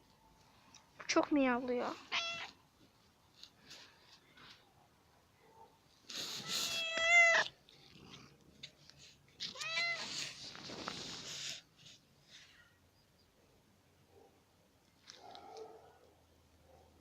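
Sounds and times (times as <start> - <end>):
cat meowing: 2.0 - 2.6, 6.4 - 7.5, 9.4 - 10.4.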